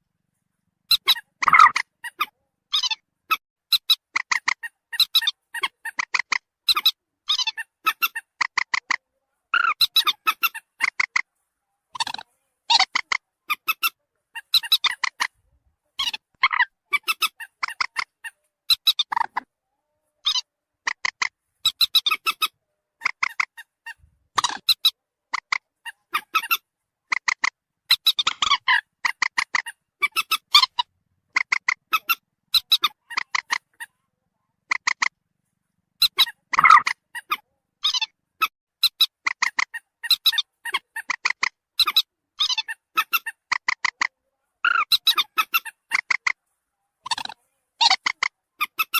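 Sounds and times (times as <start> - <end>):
moorhen calls: 0.9 - 11.3, 12.0 - 15.4, 16.0 - 34.0, 34.6 - 35.1, 36.0 - 46.4, 47.0 - 48.9.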